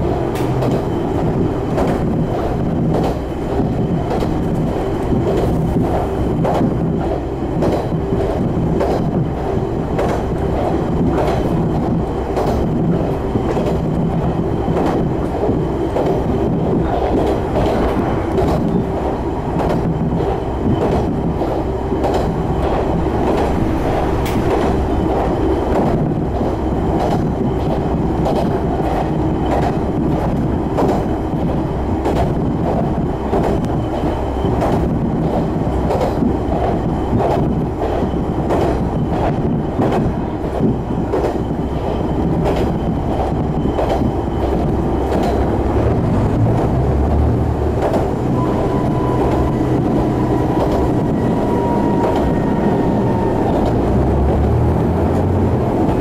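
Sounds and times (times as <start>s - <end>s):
train rumble: 0.0s - 56.0s
wheels clicking over rail joints: 1.7s - 23.6s, 24.2s - 56.0s
diesel engine: 9.2s - 29.6s, 41.9s - 56.0s.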